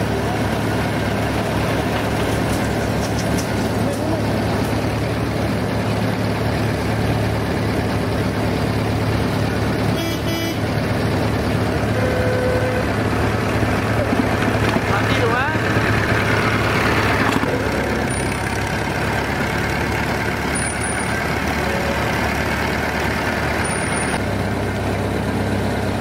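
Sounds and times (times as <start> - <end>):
old tractor engine running: 0.0 - 26.0
short horn toot: 9.9 - 10.7, 11.9 - 12.9.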